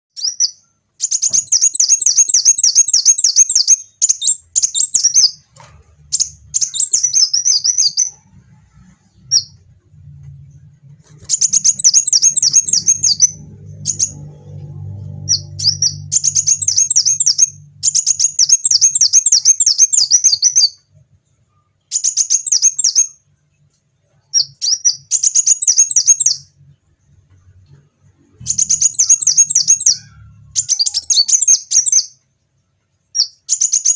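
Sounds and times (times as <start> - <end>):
sunbird trilling song: 0.2 - 5.4, 6.1 - 8.3, 11.2 - 20.9, 21.9 - 23.2, 24.2 - 26.5, 28.3 - 32.2, 33.1 - 33.9
faint low hum: 0.2 - 33.6.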